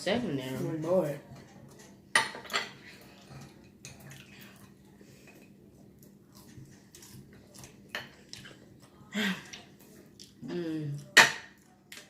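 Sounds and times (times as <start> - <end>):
utensils clinking on plate: 1.3 - 4.3.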